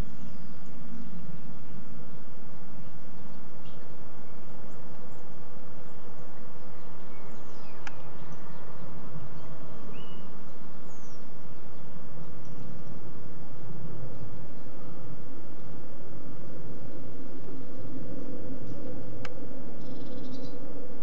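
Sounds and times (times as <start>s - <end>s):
birds chirping: 0.0s - 21.0s
low background rumble: 0.0s - 21.0s
sharp click: 7.8s - 8.0s.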